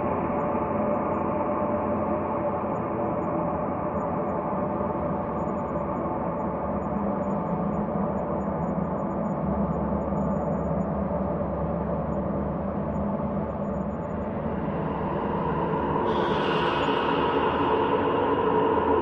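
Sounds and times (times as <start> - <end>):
synthesized ambient drone: 13.3 - 19.0.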